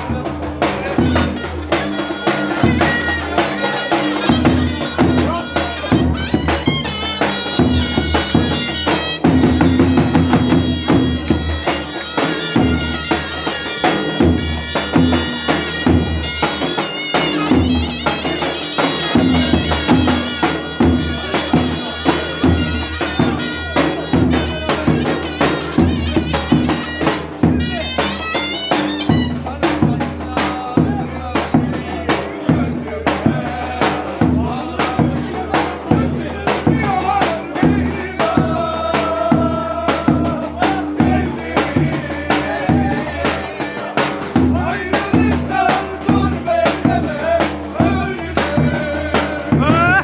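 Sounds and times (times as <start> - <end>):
drum beat: 0.0 - 50.0
clarinet melody: 1.2 - 29.6.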